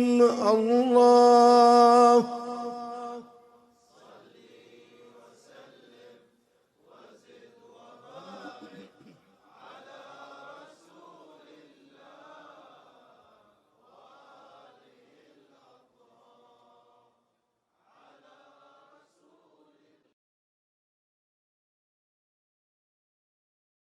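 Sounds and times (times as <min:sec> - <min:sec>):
faint chanting voices: 0:02.6 - 0:17.2.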